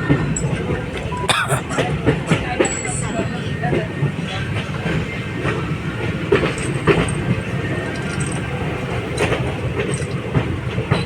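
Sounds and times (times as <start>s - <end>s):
train wheels rumbling on rail: 2.7s - 11.0s.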